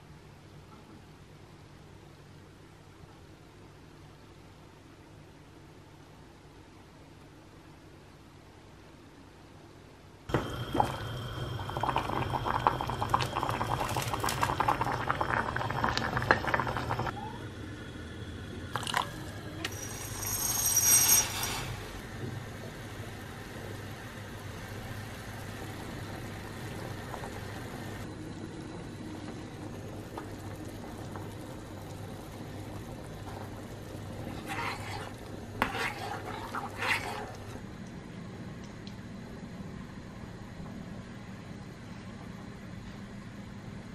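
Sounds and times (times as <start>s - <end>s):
low steady hum: 0.0s - 43.9s
short high squeak: 19.7s - 21.9s.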